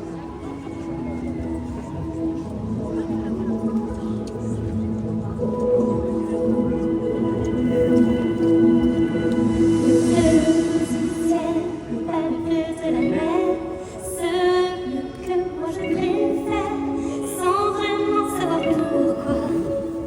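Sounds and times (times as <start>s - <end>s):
sustained backing chords: 0.0s - 20.0s
woman singing with vibrato: 7.2s - 20.0s.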